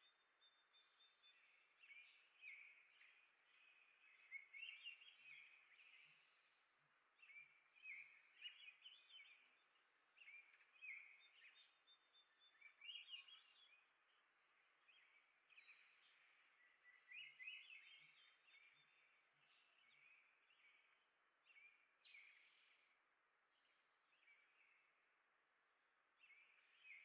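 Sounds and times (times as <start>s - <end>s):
soft outdoor hiss: 0.0s - 27.0s
songbirds warbling: 7.2s - 25.1s.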